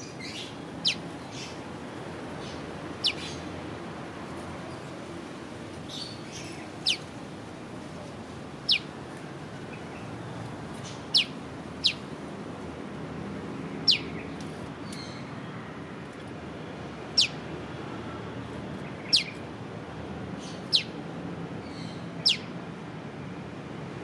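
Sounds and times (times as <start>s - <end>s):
faint chirping: 2.4s - 3.3s.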